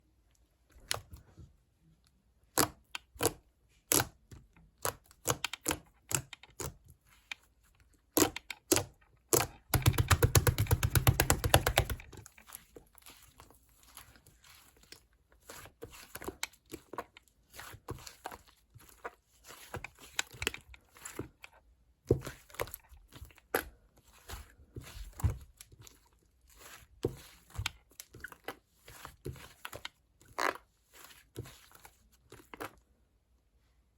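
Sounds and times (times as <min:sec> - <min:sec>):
taps and clicks of handling: 0:08.2 - 0:12.2.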